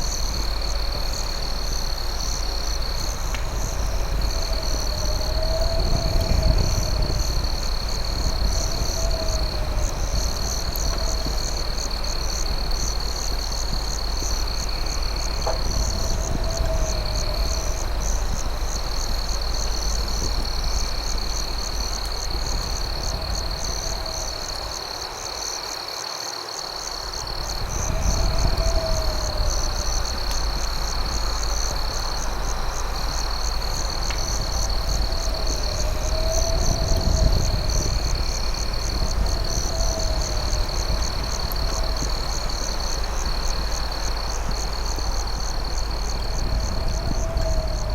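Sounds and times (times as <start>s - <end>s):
low rumble: 0.0s - 24.8s
crickets trilling: 0.0s - 47.9s.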